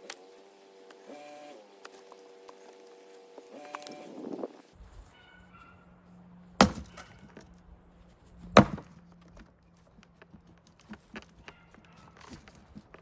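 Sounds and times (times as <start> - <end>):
axe chopping wood: 6.6 - 7.4, 8.6 - 9.0.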